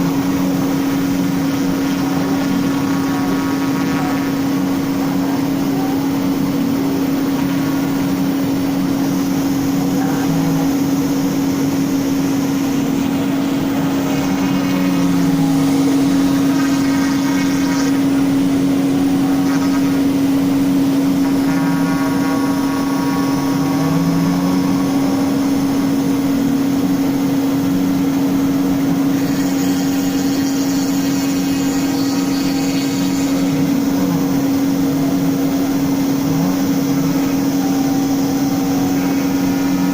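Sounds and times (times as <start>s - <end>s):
router spindle running: 0.0s - 39.9s
router bit cutting wood: 28.8s - 39.9s.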